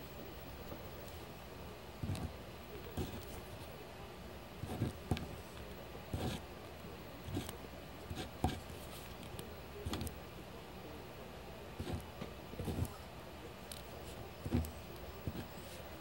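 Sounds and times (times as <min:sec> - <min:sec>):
pencil scratching on paper: 0:02.9 - 0:03.7, 0:04.6 - 0:05.4, 0:06.1 - 0:06.4, 0:07.2 - 0:09.2, 0:11.8 - 0:12.0, 0:12.6 - 0:13.0, 0:13.9 - 0:16.0.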